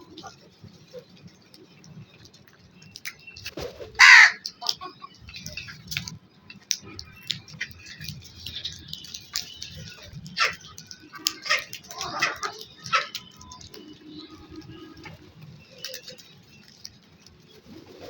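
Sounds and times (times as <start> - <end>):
crow cawing: 4.0 - 4.4.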